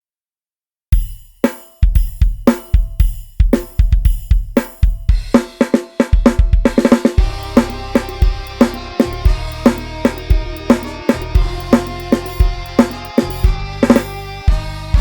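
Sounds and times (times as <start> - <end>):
drum kit groove: 0.9 - 15.0
sustained bass line: 7.2 - 15.0.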